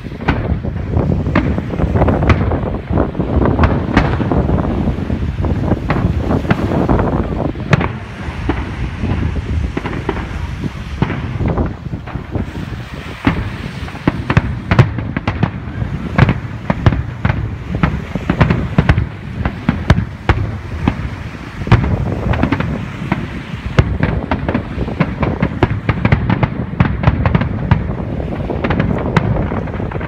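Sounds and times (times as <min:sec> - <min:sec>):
fireworks bangs: 0:00.0 - 0:30.0.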